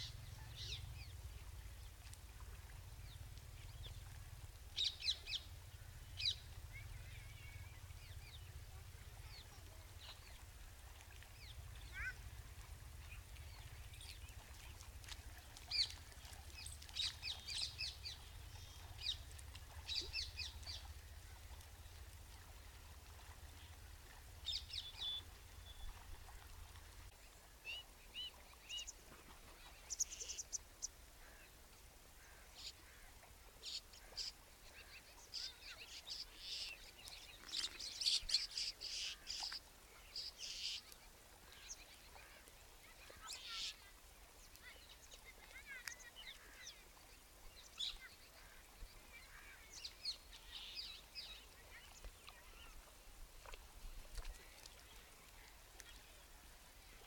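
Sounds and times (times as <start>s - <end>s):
birds chirping: 0.0s - 2.0s, 11.4s - 12.4s, 15.4s - 21.6s.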